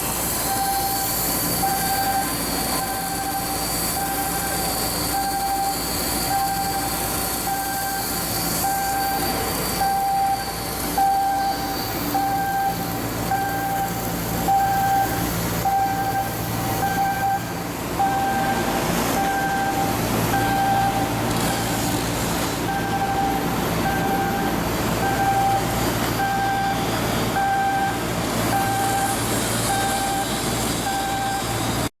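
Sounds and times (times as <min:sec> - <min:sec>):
heavy machinery hum: 0:00.0 - 0:31.9
electronic warning beeps: 0:00.4 - 0:31.9.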